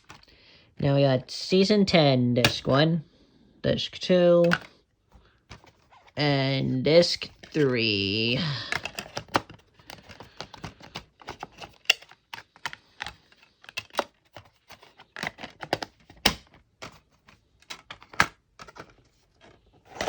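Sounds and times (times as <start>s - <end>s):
plastic disc case clicks: 4.4s - 4.7s, 8.7s - 19.0s.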